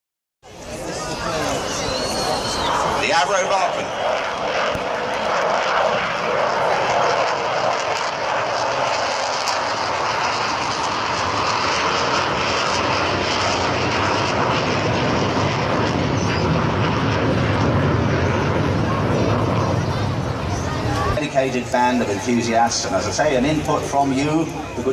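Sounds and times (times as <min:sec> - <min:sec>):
jet engines in flight: 0:00.4 - 0:24.9.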